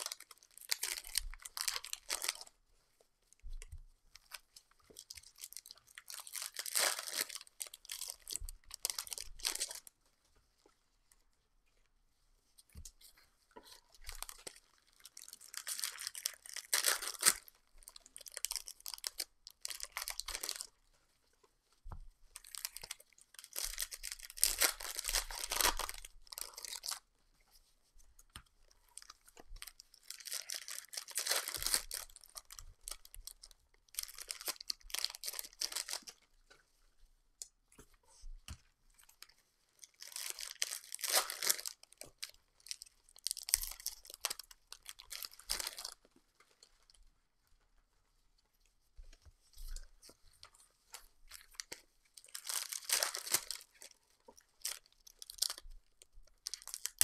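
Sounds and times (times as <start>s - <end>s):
foil wrappers tearing and crinkling: 0.0s - 2.4s, 5.3s - 9.8s, 15.2s - 20.7s, 22.4s - 27.0s, 29.0s - 33.0s, 34.0s - 36.2s, 40.0s - 46.0s, 51.4s - 53.9s, 54.6s - 55.6s, 56.4s - 57.0s.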